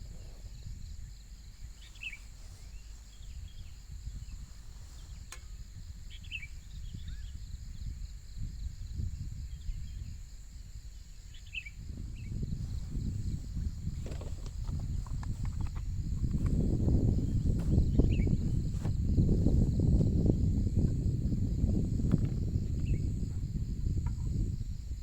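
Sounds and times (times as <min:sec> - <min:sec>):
insects droning: 0:00.0 - 0:25.0
bird chirps: 0:01.7 - 0:05.2, 0:06.1 - 0:07.4, 0:11.3 - 0:11.8.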